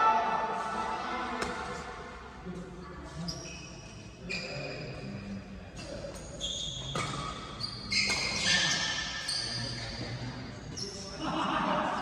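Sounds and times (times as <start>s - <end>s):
racket hitting shuttlecock: 1.4s - 2.0s, 6.9s - 9.3s
shoes squeaking on court floor: 3.2s - 5.1s, 5.8s - 11.0s.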